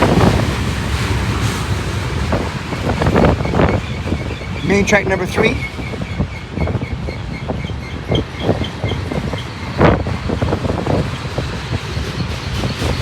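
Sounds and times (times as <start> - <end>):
freight cars clanking: 0.0 - 13.0
train wheels rumbling on rails: 0.0 - 13.0.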